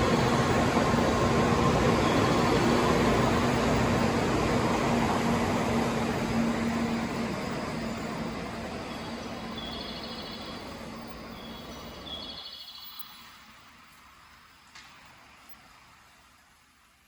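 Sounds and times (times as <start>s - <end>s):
train running noise: 0.0s - 17.0s
faint high chirps: 8.9s - 13.3s.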